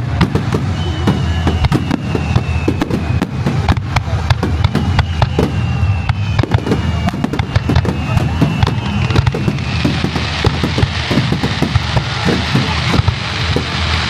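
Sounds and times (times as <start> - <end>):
firework shells bursting: 0.0 - 14.0
low rumble of booms: 0.0 - 14.0
sharp firework cracks: 0.0 - 14.0
faint descending whistles: 0.6 - 3.5, 4.4 - 10.2.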